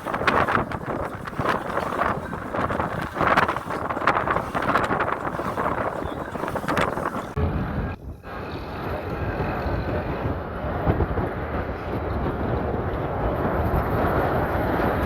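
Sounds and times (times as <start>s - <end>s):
wind noise: 0.0s - 15.0s.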